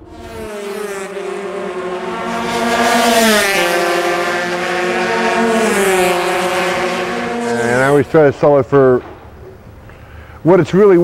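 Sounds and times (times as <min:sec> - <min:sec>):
motorcycle engine passing by: 0:00.0 - 0:08.7.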